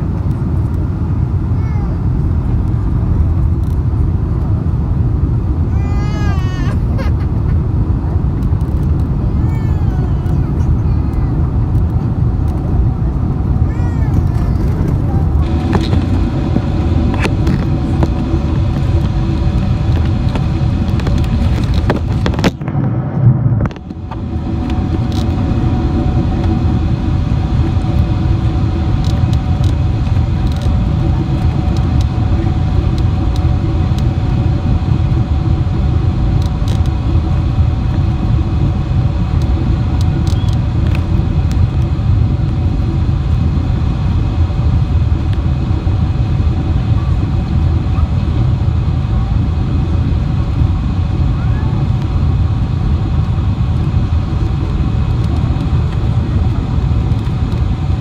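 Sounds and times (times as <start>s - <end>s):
airliner cabin rumble: 0.0s - 58.0s
jet engine tones: 8.6s - 48.2s.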